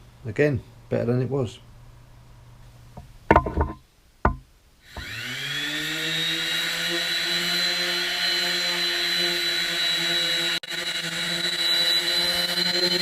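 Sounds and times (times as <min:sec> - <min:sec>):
handling knocks: 0:03.0 - 0:04.5
power tool motor whining: 0:04.9 - 0:13.0.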